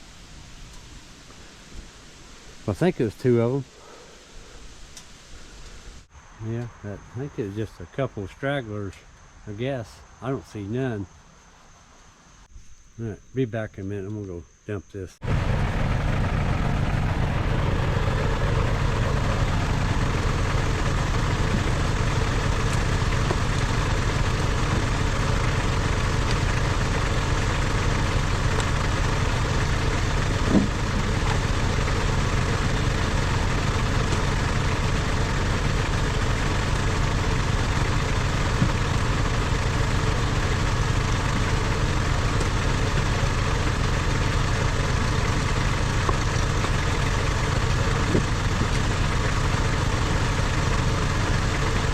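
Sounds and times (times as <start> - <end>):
gas engine idling: 15.2 - 51.9.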